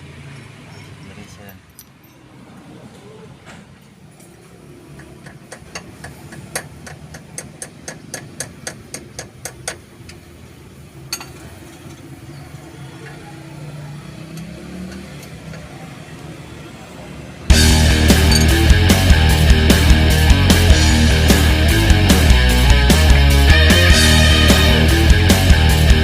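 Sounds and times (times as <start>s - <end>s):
steady low hum: 17.5s - 26.0s.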